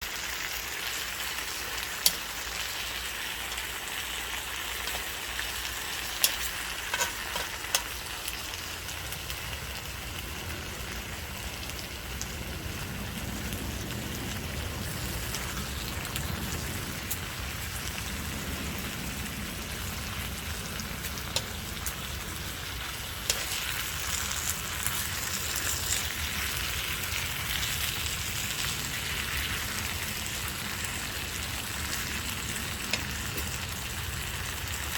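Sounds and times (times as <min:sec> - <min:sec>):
chicken sizzling in a pan: 0:00.0 - 0:34.9
low rumble: 0:09.0 - 0:34.9.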